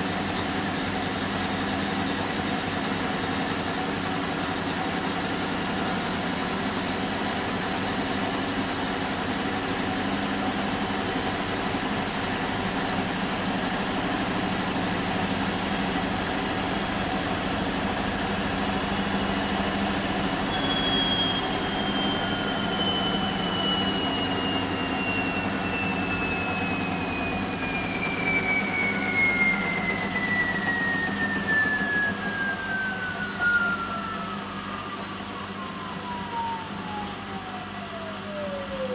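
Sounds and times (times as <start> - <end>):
washing machine hum: 0.0 - 38.9
motor whine falling in pitch: 9.2 - 38.9.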